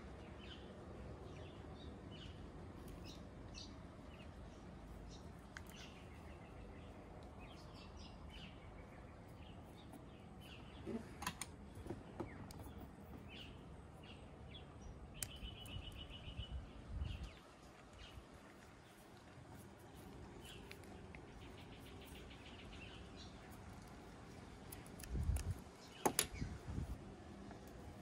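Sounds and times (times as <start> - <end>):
birds chirping: 0.0 - 26.9
low outdoor rumble: 0.0 - 28.0
sharp clicks: 15.2 - 16.1, 24.6 - 26.5.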